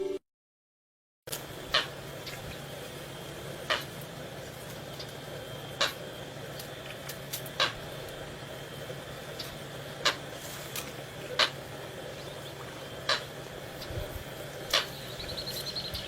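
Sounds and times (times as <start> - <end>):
coot calling: 1.7 - 2.4, 3.4 - 4.0, 4.9 - 6.2, 7.5 - 16.0.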